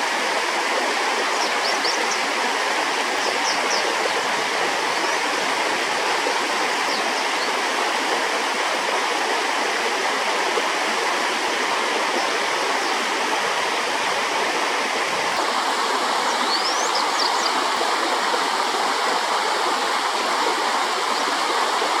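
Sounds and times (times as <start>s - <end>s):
flowing stream water: 0.0s - 22.0s.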